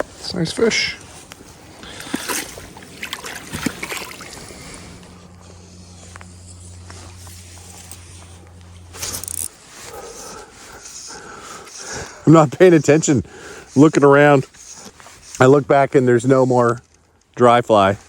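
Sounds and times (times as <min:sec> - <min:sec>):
steady low hum: 0:00.0 - 0:18.0
water sloshing and splashing: 0:01.7 - 0:05.0.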